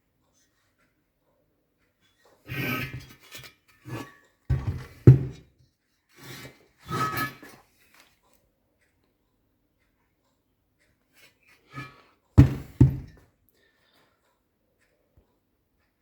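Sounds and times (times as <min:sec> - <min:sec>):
rubbing and scraping handling noise: 0:02.4 - 0:05.5, 0:06.1 - 0:08.3, 0:11.2 - 0:13.2.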